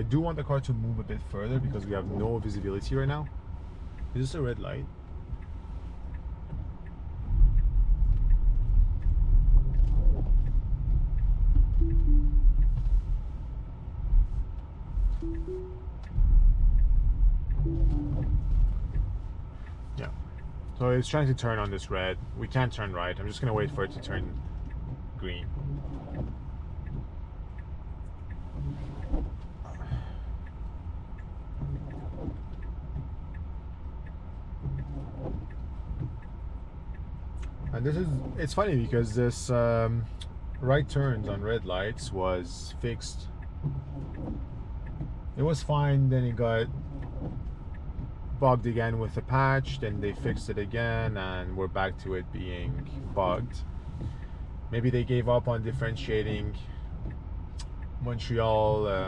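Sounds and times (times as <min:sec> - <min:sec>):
car cabin rumble: 0:00.0 - 0:59.0
turn signal ticking: 0:00.0 - 0:59.0
windshield wipers sweeping: 0:00.0 - 0:59.0
two-note tone: 0:11.8 - 0:12.7, 0:15.2 - 0:16.1, 0:17.6 - 0:18.4.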